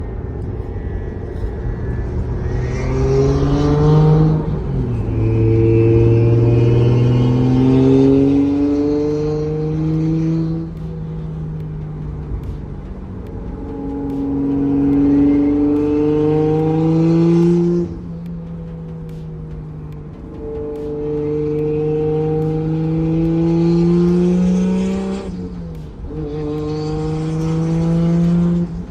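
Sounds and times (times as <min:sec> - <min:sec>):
faint high turbo whistle: 0:00.0 - 0:23.2
car engine accelerating hard: 0:00.0 - 0:28.9.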